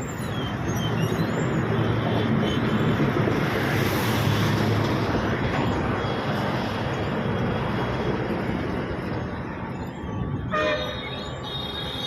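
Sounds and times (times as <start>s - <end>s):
vehicle road and engine noise: 0.0s - 12.0s
higher-pitched horn: 10.5s - 12.0s
vehicle horn: 10.5s - 12.0s.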